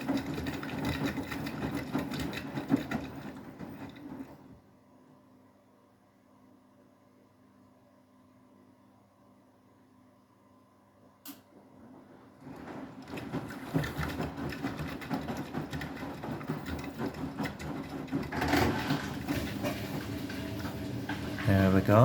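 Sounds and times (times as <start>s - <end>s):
washing machine drum rattling: 0.0s - 4.4s, 12.4s - 22.0s.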